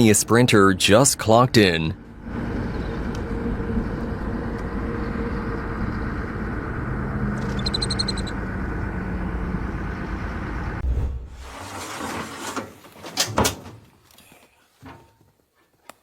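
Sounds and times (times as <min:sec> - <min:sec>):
low engine rumble: 0:02.0 - 0:11.8.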